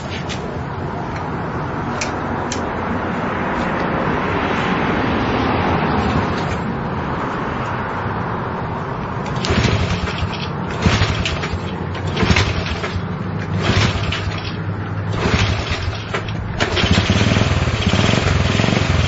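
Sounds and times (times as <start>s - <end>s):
small engine running rough: 9.3s - 19.0s.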